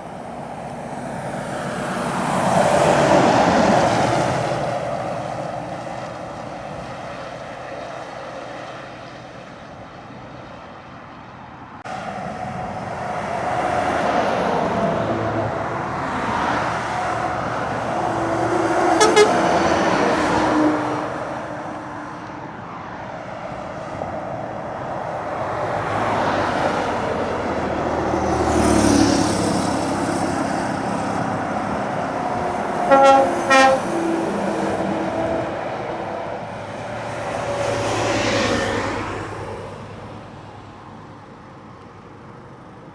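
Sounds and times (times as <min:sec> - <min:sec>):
lorry diesel engines climbing: 0:00.0 - 0:42.9
truck horn toots: 0:18.8 - 0:20.0, 0:32.8 - 0:34.0.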